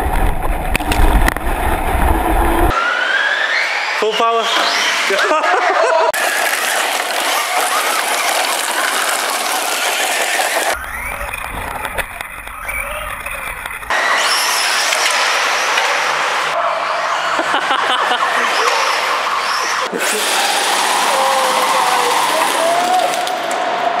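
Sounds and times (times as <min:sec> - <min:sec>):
rushing tyres and wind: 0:00.0 - 0:02.7
remote control car motor whine: 0:06.2 - 0:16.5, 0:18.5 - 0:22.3.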